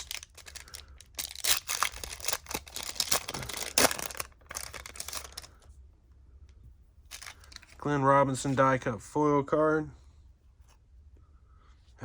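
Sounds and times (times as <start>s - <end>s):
cards being handled: 0.0s - 5.6s, 7.1s - 7.8s
wrapper tearing and crinkling: 0.0s - 5.6s, 7.1s - 7.8s.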